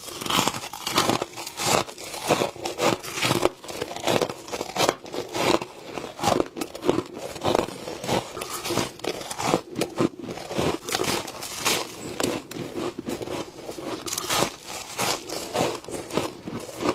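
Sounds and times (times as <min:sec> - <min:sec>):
chewing crunchy frost: 0:00.0 - 0:16.9.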